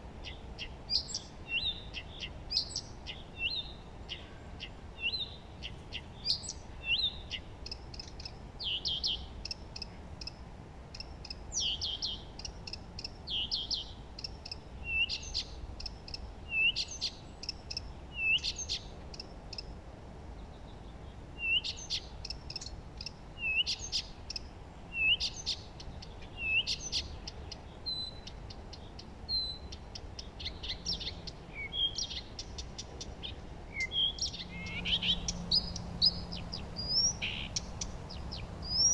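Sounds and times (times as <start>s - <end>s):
low background hiss: 0.0s - 38.9s
songbirds chirping: 0.0s - 38.9s
bird trills: 26.3s - 38.9s.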